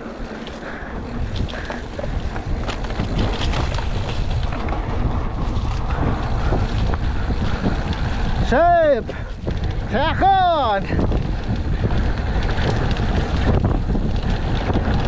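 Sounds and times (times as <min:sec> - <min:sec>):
bike rattling and clicking: 0:00.0 - 0:15.0
wind rumbling on microphone: 0:00.0 - 0:15.0.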